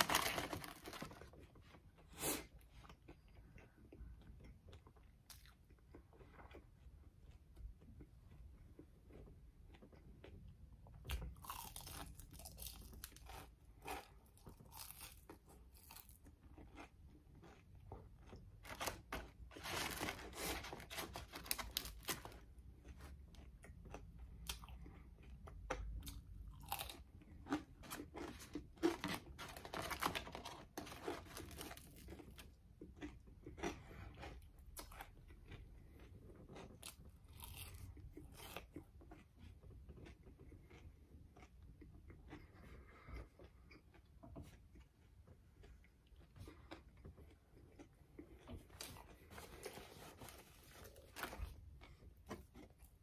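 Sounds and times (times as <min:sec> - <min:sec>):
crunching fried food: 0:00.0 - 0:53.0.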